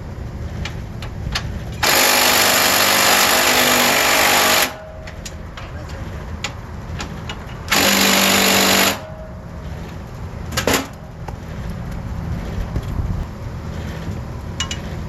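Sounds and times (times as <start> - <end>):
handheld power tool running: 1.8 - 4.9, 7.7 - 9.2
low rumble: 9.0 - 15.0.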